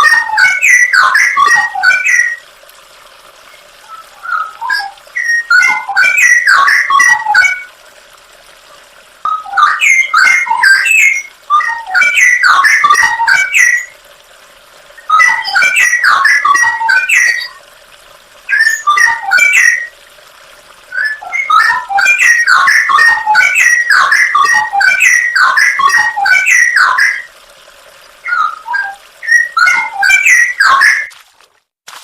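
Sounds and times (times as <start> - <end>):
songbird chirping and warbling: 0.0 - 2.4, 3.5 - 7.7, 9.3 - 14.0, 15.0 - 17.6, 18.5 - 19.9, 20.9 - 27.3, 28.2 - 31.1.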